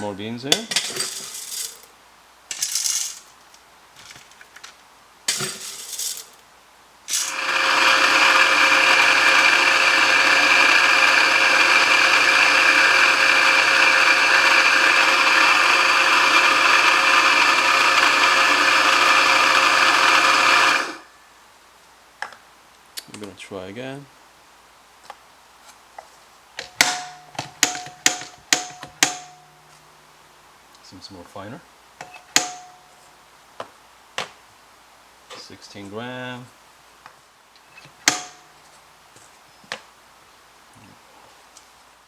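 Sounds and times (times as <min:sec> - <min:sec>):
coffee beans rattling into hopper: 0:00.6 - 0:01.9, 0:02.5 - 0:03.4, 0:05.3 - 0:06.4, 0:07.1 - 0:21.1
coffee grinder whirring: 0:05.3 - 0:06.3, 0:07.1 - 0:21.1, 0:38.1 - 0:38.4.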